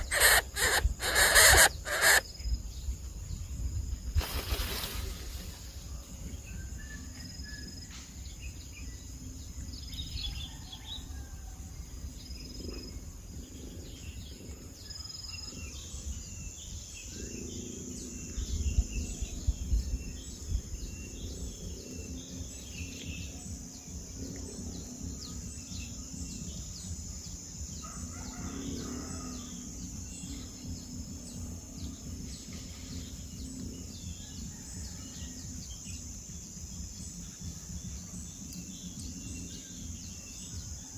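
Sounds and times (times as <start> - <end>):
small bird chirps: 0.0 - 2.7
insect drone: 0.0 - 40.9.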